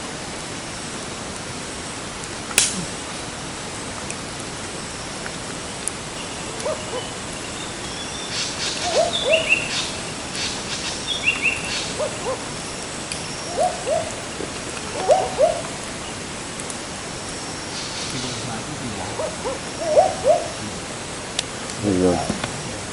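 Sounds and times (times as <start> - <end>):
steady background hiss: 0.0 - 22.9
sharp bird calls: 4.8 - 21.2
owl hooting: 6.1 - 16.4, 17.0 - 21.2.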